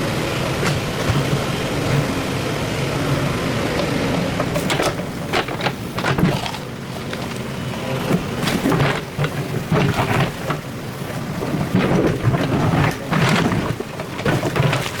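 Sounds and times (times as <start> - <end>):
excavator diesel engine running: 0.0 - 15.0
sharp knocks and clatter: 0.6 - 2.1, 4.4 - 10.7, 11.3 - 15.0.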